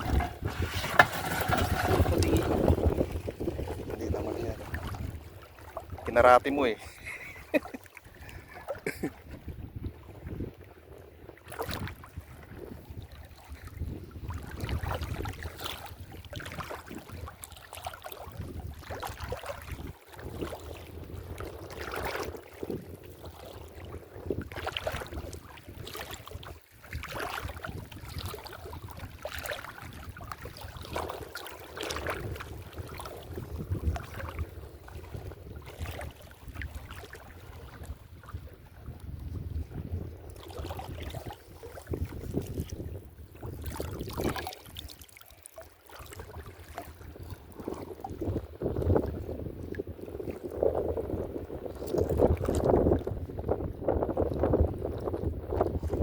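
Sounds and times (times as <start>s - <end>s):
shallow water splashing: 0.0s - 9.2s, 23.2s - 39.3s, 40.2s - 50.5s
wind rumbling on microphone: 0.0s - 45.1s, 45.8s - 56.0s.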